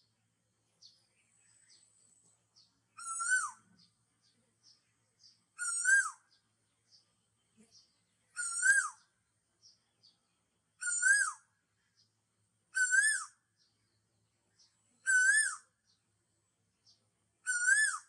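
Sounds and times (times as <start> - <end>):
bird whistled call: 3.0 - 3.8, 5.6 - 6.3, 8.3 - 9.0, 10.8 - 11.5, 12.7 - 13.4, 15.0 - 15.7, 17.4 - 18.0.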